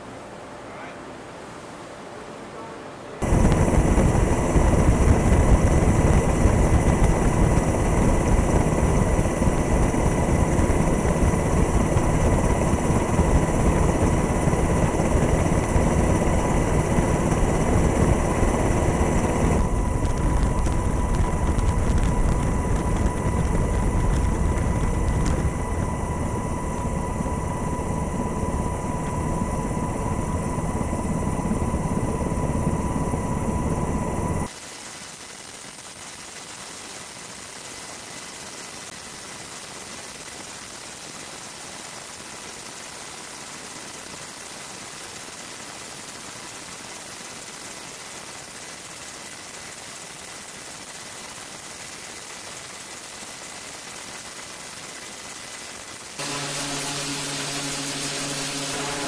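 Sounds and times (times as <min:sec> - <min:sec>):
helicopter engine and rotor drone: 0:03.2 - 0:34.5, 0:35.2 - 0:59.0
thin high whine: 0:03.2 - 0:39.4, 0:55.1 - 0:59.0.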